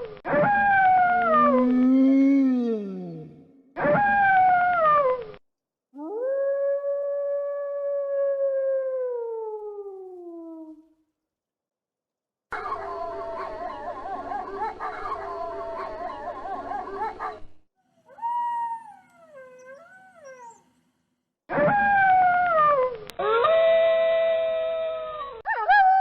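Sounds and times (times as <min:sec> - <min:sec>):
wolves howling: 0:00.3 - 0:03.4, 0:12.6 - 0:17.5, 0:18.1 - 0:20.6.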